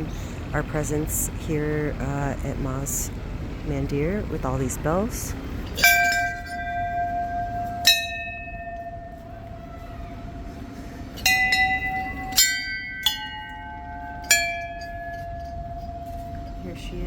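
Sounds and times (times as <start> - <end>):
temple bells ringing: 3.9 - 17.0.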